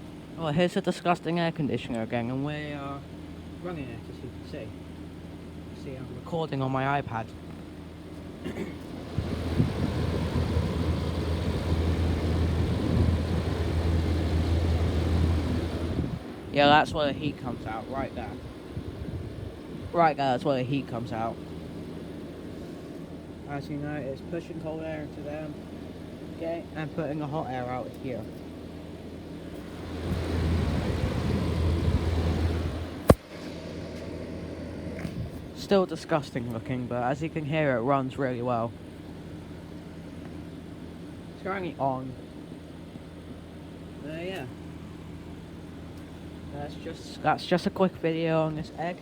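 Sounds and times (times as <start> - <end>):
air conditioner humming: 0.0 - 49.0
rush of fan air: 8.5 - 20.4, 29.3 - 35.6.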